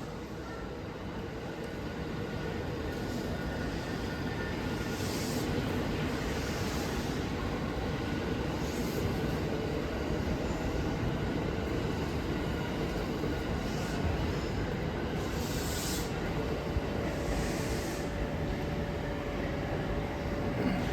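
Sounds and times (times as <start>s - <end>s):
electric train rumble: 0.0s - 20.9s
wheels squealing on rails: 2.9s - 18.9s.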